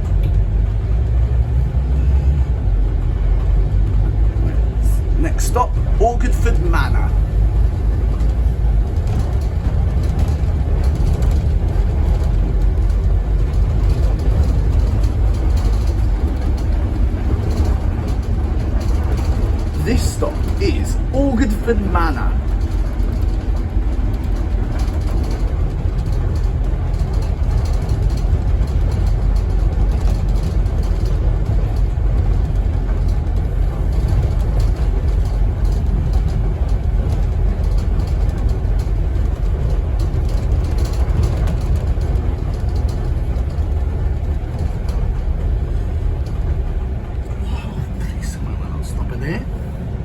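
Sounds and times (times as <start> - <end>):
bus diesel engine rumble: 0.0 - 50.0
faint rattles: 3.3 - 50.0.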